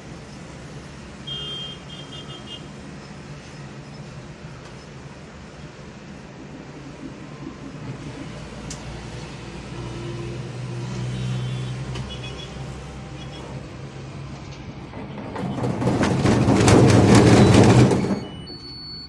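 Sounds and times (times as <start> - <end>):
washing machine humming: 12.6 - 19.0
loud rattling: 13.4 - 18.4.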